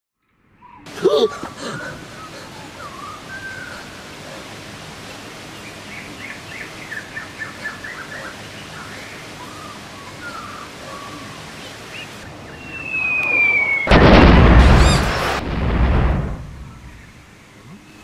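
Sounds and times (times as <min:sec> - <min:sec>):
steady background hiss: 0:00.9 - 0:18.0
birds chirping and singing: 0:05.5 - 0:14.0.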